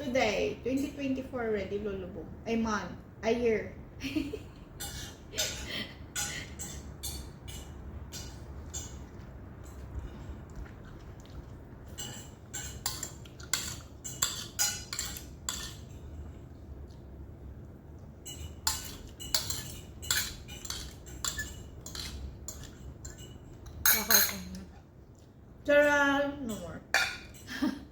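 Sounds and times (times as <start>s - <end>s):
cutlery clinking on a plate: 11.9s - 16.0s, 18.2s - 24.6s.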